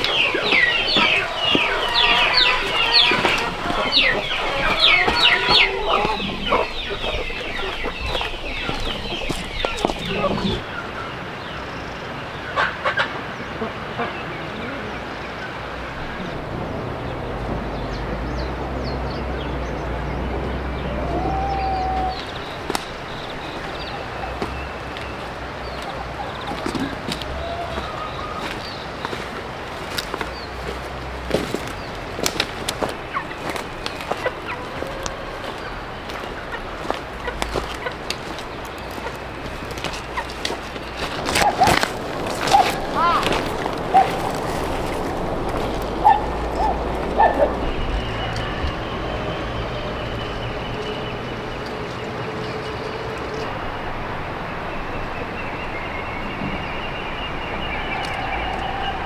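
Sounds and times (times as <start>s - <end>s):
chickens clucking: 0.0s - 53.9s, 54.8s - 59.0s
rustling: 22.3s - 47.6s.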